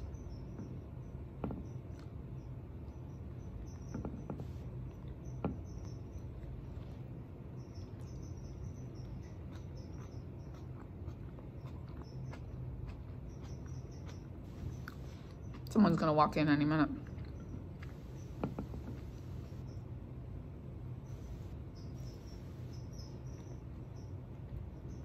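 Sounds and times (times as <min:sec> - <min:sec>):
low hum: 0:00.0 - 0:25.0
person chewing a cracker: 0:09.0 - 0:15.8, 0:17.0 - 0:18.1.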